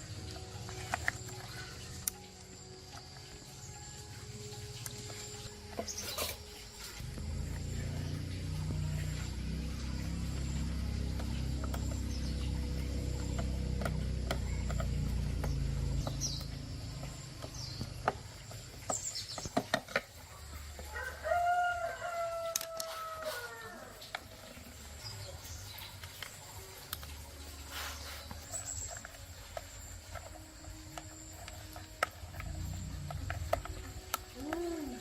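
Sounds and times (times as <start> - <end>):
low steady hum: 0.0 - 22.5, 23.6 - 35.0
rooster crowing: 20.8 - 24.1.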